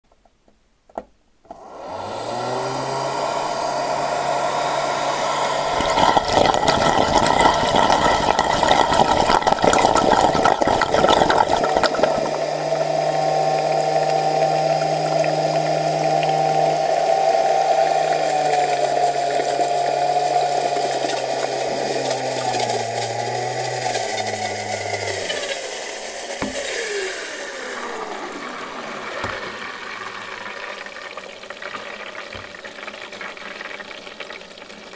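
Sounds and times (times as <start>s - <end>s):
vacuum motor whining: 1.5s - 30.8s
water splashing and gurgling: 5.7s - 34.9s.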